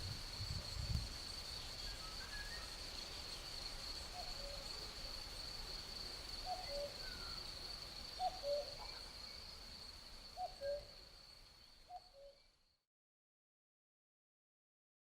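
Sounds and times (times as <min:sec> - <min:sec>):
crickets chirring: 0:00.0 - 0:12.8
faint songbird notes: 0:01.5 - 0:04.8
cuckoo calling: 0:06.5 - 0:07.4, 0:08.2 - 0:09.0, 0:10.4 - 0:10.9.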